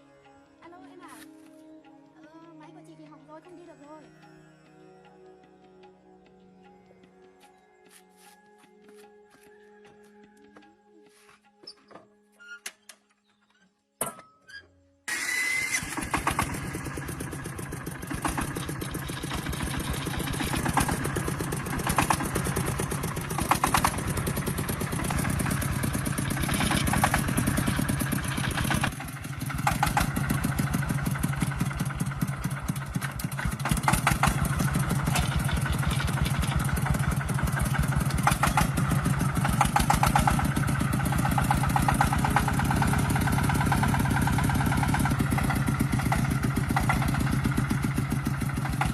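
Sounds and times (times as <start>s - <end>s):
truck engine running: 15.8s - 48.9s.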